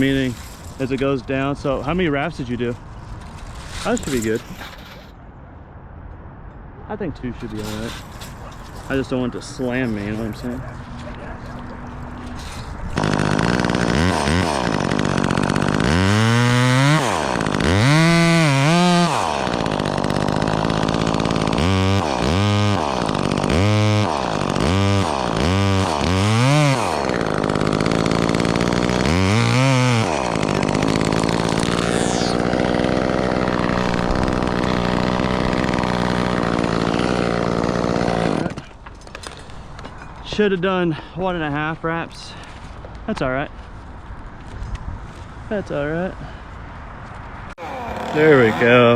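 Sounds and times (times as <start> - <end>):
chainsaw revving and cutting: 12.2 - 38.7, 47.6 - 48.9.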